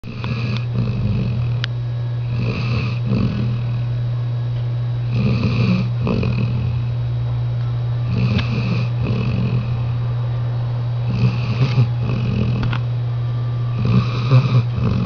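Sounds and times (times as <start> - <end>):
dog snoring: 0.0 - 3.9, 5.0 - 7.0, 8.0 - 10.0, 11.0 - 12.8, 13.7 - 15.0
steady low hum: 0.0 - 15.0.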